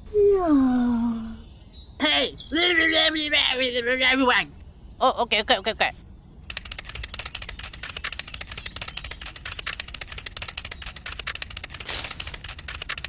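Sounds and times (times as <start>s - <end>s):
rapid crackling clicks: 6.4s - 13.0s.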